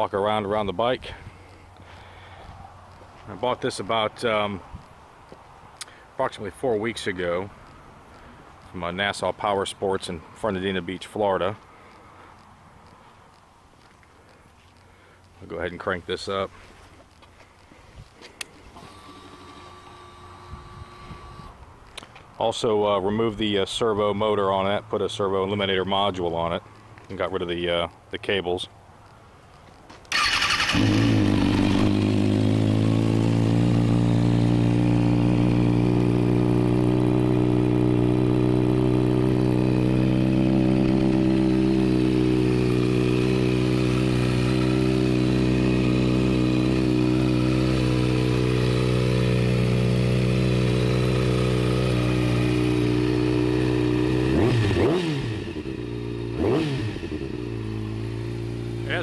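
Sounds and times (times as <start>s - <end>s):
motorcycle throttle blips: 17.0s - 22.4s, 29.8s - 59.0s
motorcycle engine idling: 30.1s - 59.0s.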